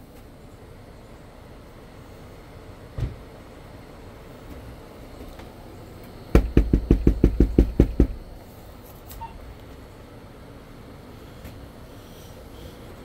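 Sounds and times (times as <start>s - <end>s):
knocking hard on a door: 6.3s - 8.3s.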